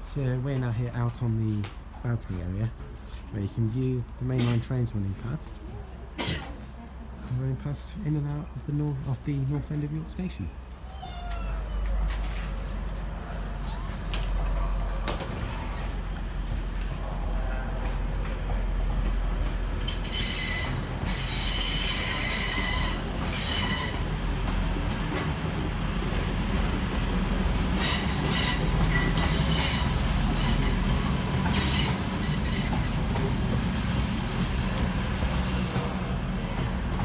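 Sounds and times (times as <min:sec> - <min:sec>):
passenger train rumbling past: 0:00.0 - 0:37.0
high-pitched wheel squeal: 0:19.9 - 0:24.0.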